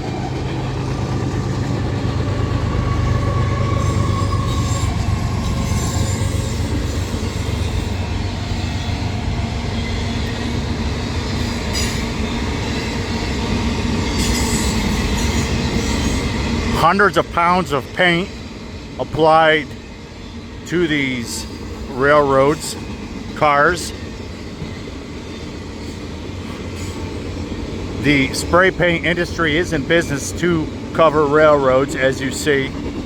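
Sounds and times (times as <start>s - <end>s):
freight train wheels rumbling: 0.0s - 33.0s
faint high wheel squeal: 2.8s - 8.0s.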